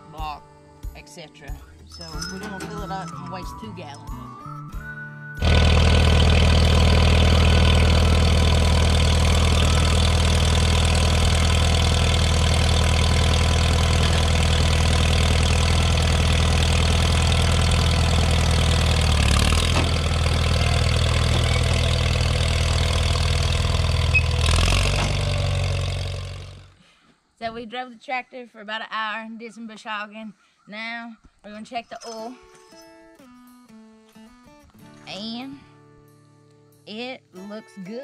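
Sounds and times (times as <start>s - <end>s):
tractor engine running: 1.9s - 3.8s, 5.4s - 26.8s.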